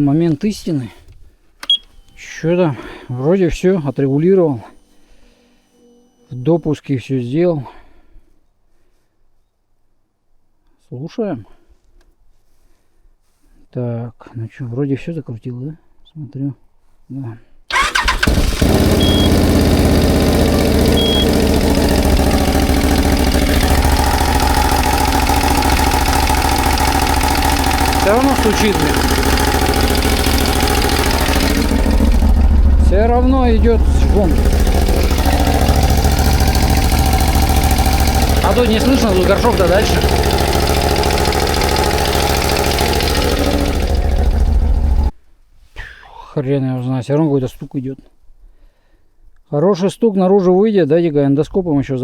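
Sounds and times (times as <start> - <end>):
engine cranking and starting: 17.7 - 45.1
engine idling with knock: 17.7 - 45.1.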